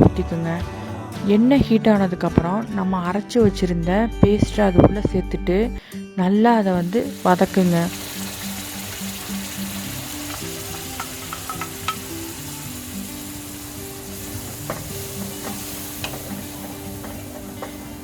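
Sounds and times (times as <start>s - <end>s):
paste sizzling in hot oil: 6.8s - 18.0s
spatula clicking against pan: 14.7s - 17.9s.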